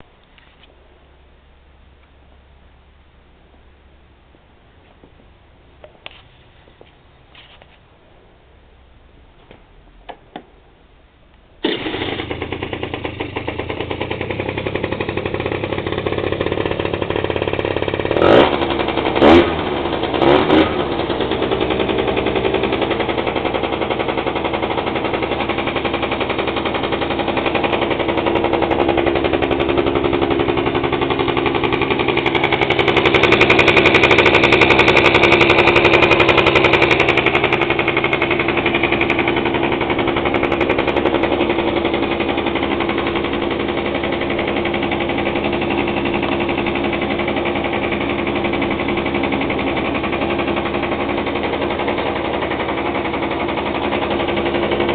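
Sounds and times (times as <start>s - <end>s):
scooter engine revving: 11.6s - 54.9s.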